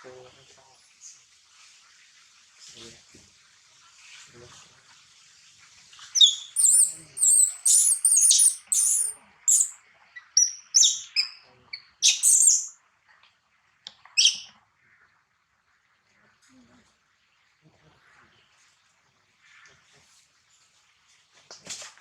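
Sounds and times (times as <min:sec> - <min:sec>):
baby monkey squeaky calls: 0:06.2 - 0:12.7, 0:14.2 - 0:14.5.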